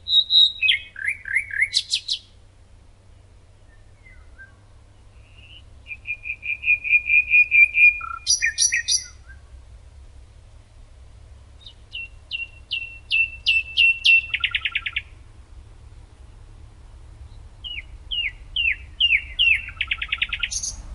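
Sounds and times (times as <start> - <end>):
songbird singing: 0.0 - 20.9.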